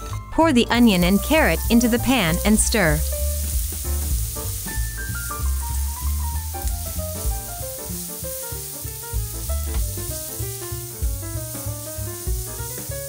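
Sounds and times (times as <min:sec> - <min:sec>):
vegetables sizzling in a pan: 0:00.7 - 0:13.0.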